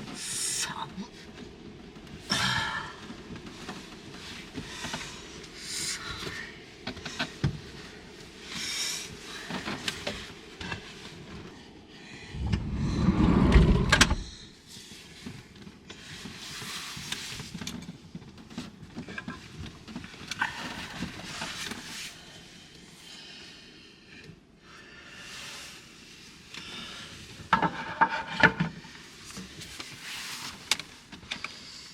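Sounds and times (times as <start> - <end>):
rumbling thud: 12.3 - 14.5.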